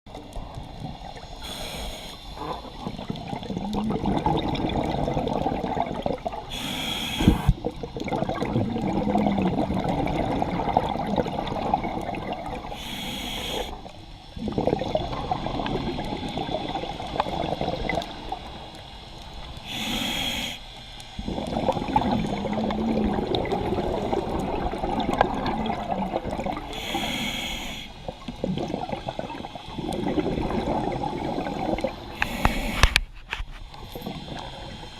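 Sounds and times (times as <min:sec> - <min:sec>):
regulator hissing inhale: 0:01.2 - 0:02.8, 0:06.5 - 0:07.6, 0:12.6 - 0:14.3, 0:18.9 - 0:21.4, 0:26.6 - 0:28.2, 0:32.1 - 0:33.0, 0:33.6 - 0:34.9
exhaust bubbles bubbling: 0:02.7 - 0:06.5, 0:07.3 - 0:12.7, 0:14.4 - 0:18.4, 0:21.2 - 0:26.7, 0:28.0 - 0:32.2.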